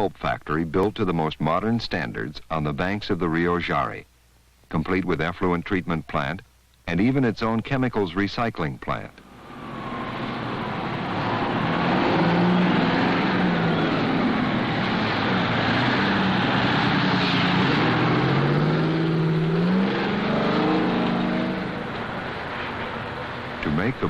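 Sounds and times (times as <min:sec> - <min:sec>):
loud steady mechanical noise: 0:06.5 - 0:24.0
motor engines running: 0:09.2 - 0:24.0.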